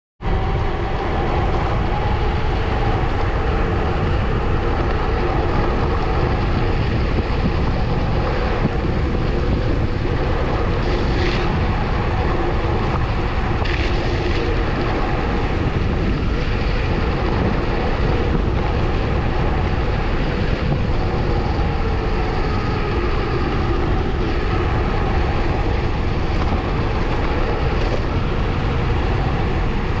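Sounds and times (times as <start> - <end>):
constant hum: 0.2 - 30.0
wind rushing over microphone: 0.2 - 30.0.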